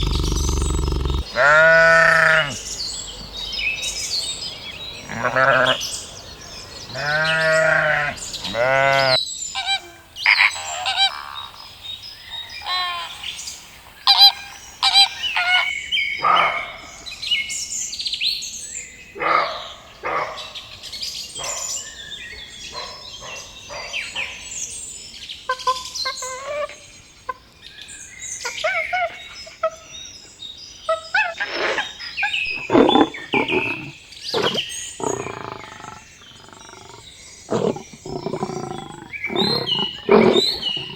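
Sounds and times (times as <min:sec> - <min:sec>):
birds chirping and calling: 0:00.0 - 0:08.9, 0:30.7 - 0:40.9
bleat: 0:01.1 - 0:02.6, 0:05.1 - 0:05.8, 0:06.9 - 0:09.2.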